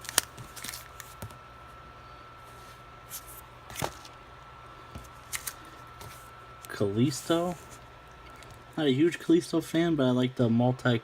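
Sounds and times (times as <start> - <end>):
trading cards clicking and rustling: 0.0 - 1.4, 3.1 - 4.2, 5.0 - 6.3
faint steady hum: 0.0 - 11.0.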